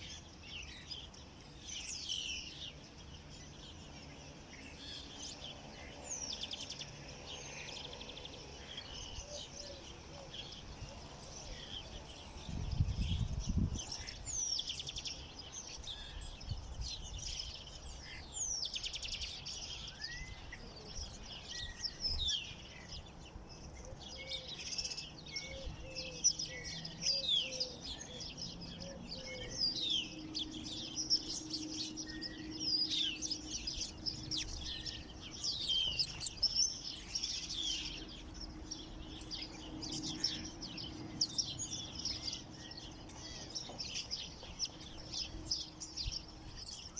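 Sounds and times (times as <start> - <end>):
songbirds chirping and singing: 0.0 - 46.9.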